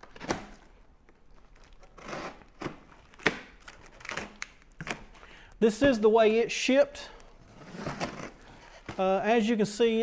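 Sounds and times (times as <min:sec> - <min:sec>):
cardboard box rustling: 0:07.4 - 0:09.2.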